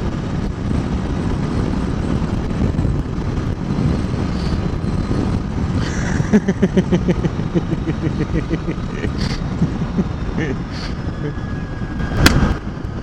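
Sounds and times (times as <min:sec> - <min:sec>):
motorcycle running: 0:00.0 - 0:13.0
wind noise on microphone: 0:00.0 - 0:13.0.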